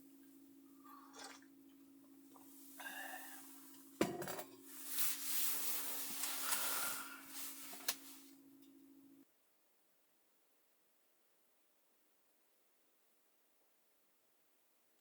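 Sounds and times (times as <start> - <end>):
objects clattering and rubbing: 3.7 - 8.2.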